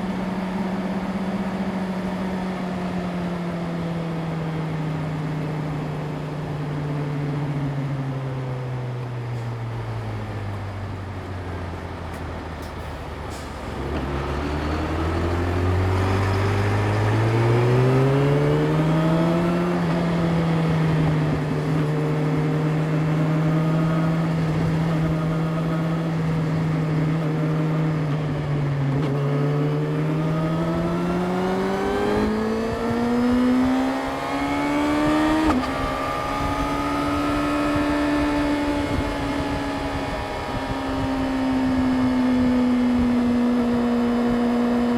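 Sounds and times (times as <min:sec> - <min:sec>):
motorcycle engine accelerating: 0:13.2 - 0:44.9.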